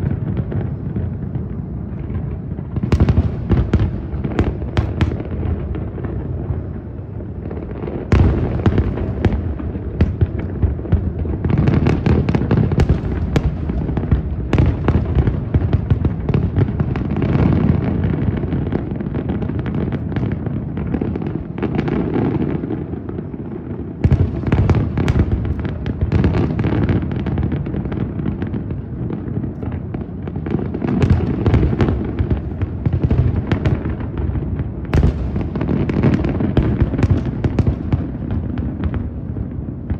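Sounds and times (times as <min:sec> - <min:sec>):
fireworks booming: 0:00.0 - 0:39.9.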